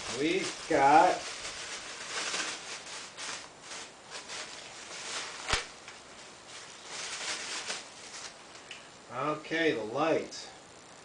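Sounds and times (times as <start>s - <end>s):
packaging rustling and scraping: 0.0s - 8.4s.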